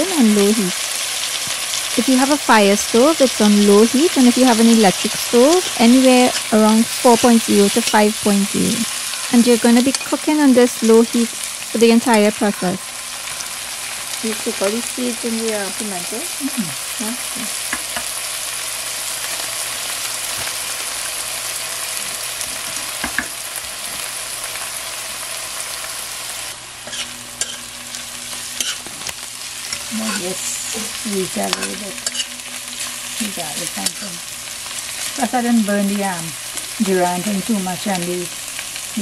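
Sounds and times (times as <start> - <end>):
vegetables sizzling in oil: 0.0 - 39.0
metal spoon scraping pot: 26.8 - 27.7, 31.4 - 34.2.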